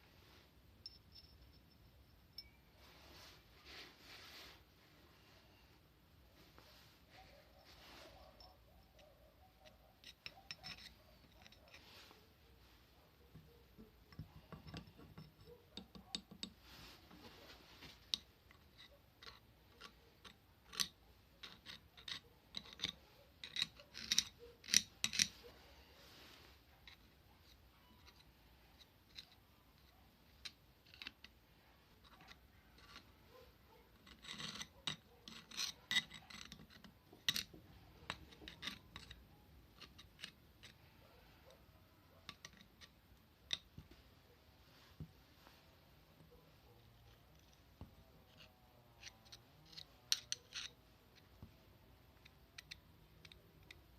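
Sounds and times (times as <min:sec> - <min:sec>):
small metal parts clicking and tapping: 0:00.8 - 0:02.6, 0:08.4 - 0:11.9, 0:13.3 - 0:16.6, 0:18.0 - 0:25.4, 0:26.8 - 0:33.2, 0:33.9 - 0:40.9, 0:42.2 - 0:44.0, 0:47.0 - 0:53.9.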